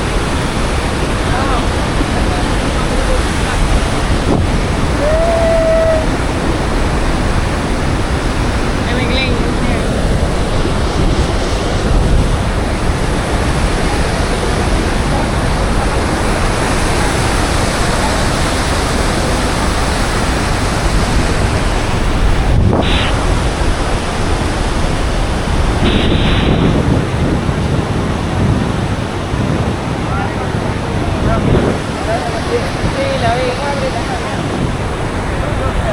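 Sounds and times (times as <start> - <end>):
waterfall rushing: 0.0 - 35.9
short bursts of noise: 22.7 - 23.4, 25.8 - 27.2.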